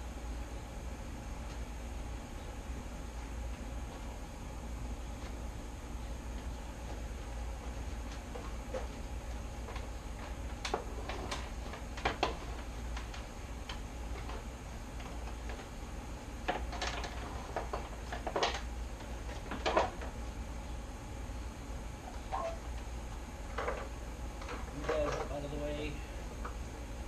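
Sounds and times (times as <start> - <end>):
steady low hum: 0.0 - 27.0
clicks and knocks on plastic fairing: 8.0 - 15.7, 16.5 - 20.2, 23.5 - 25.4.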